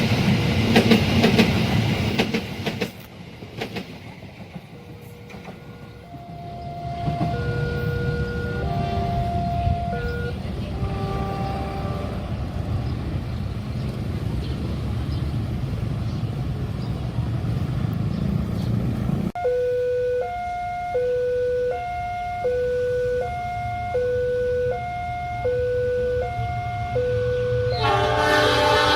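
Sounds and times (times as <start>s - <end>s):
heavy low rumble of traffic: 0.0s - 28.9s
level crossing two-note alarm: 6.1s - 10.4s, 19.4s - 27.8s.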